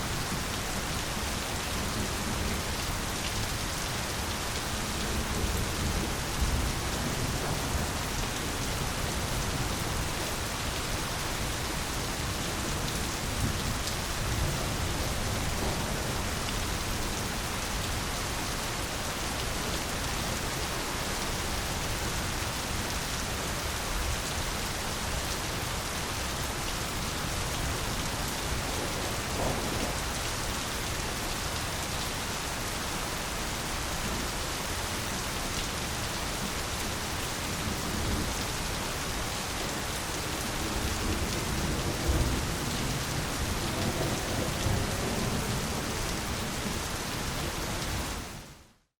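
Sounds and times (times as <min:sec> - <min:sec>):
dense rain falling: 0:00.0 - 0:48.9
low rumble of thunder: 0:27.6 - 0:30.3, 0:40.3 - 0:46.9.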